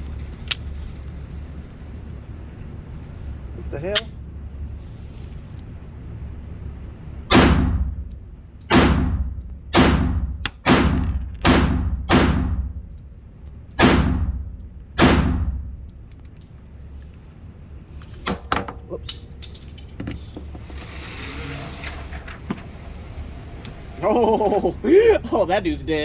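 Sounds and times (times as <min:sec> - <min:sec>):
gunshots: 0:07.3 - 0:08.1, 0:08.7 - 0:12.8, 0:13.8 - 0:15.8.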